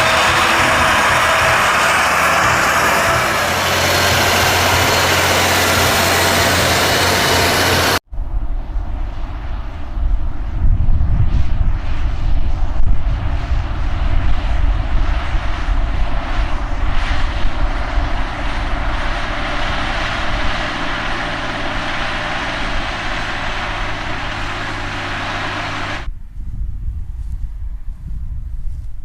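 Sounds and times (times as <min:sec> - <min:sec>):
tractor diesel engine drone: 0:00.0 - 0:08.0, 0:15.7 - 0:26.1.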